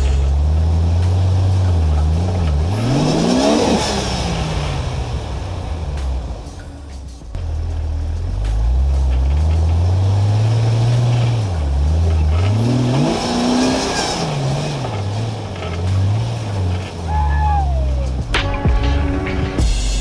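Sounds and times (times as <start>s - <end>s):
engine revving hard: 0.0s - 5.8s, 8.4s - 18.3s.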